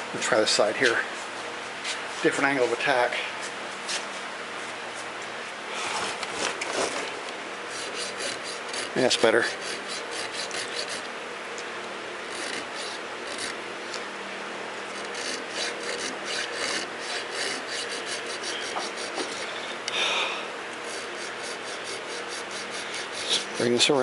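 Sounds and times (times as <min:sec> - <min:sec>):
hand file rasping on metal: 0:07.7 - 0:11.1, 0:12.3 - 0:13.6, 0:14.9 - 0:19.6, 0:20.8 - 0:24.0
high-pitched file scrape: 0:07.7 - 0:11.1, 0:12.3 - 0:13.6, 0:15.0 - 0:19.6, 0:20.9 - 0:23.8.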